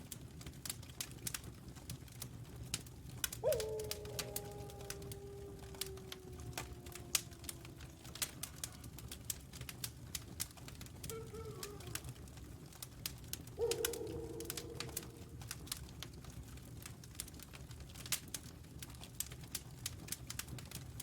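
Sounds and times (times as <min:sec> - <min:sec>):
wood fire crackling: 0:00.0 - 0:21.0
wolves howling: 0:03.3 - 0:09.7, 0:11.0 - 0:12.5, 0:13.6 - 0:15.7.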